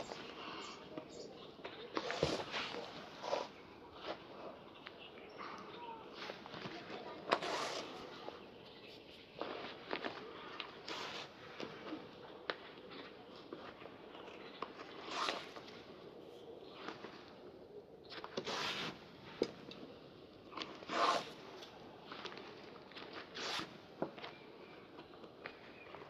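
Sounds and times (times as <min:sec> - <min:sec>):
brush swishing over leather shoe: 0:07.3 - 0:08.1, 0:18.4 - 0:19.0, 0:20.9 - 0:21.4, 0:23.4 - 0:23.7.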